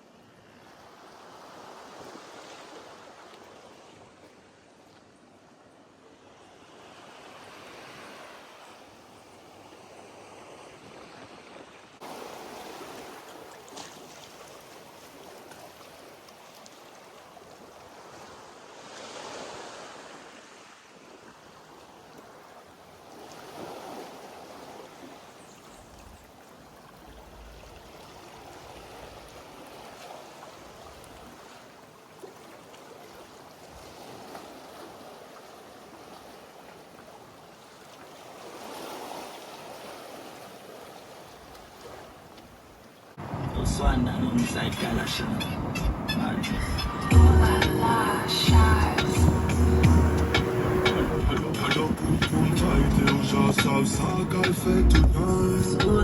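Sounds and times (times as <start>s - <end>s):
sea waves washing in: 6.7s - 25.1s, 43.2s - 56.0s.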